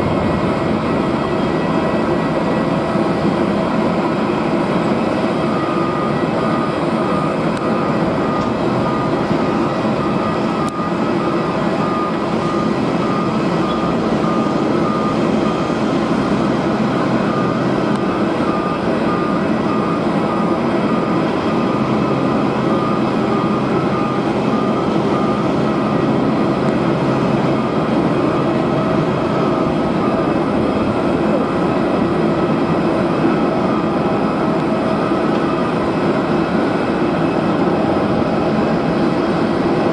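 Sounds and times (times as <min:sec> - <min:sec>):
wind buffeting microphone: 0:00.0 - 0:12.4, 0:25.0 - 0:39.9
jet engines: 0:00.0 - 0:39.9.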